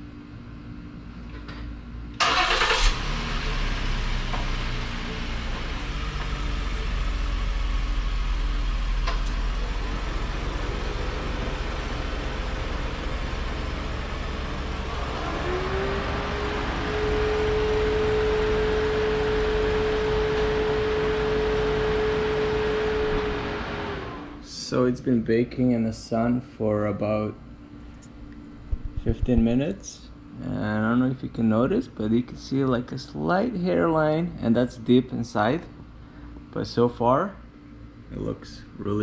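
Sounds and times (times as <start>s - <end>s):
engine cranking: 2.2s - 3.0s
car engine idling and running: 2.2s - 24.4s
steady rising tone: 9.5s - 24.4s.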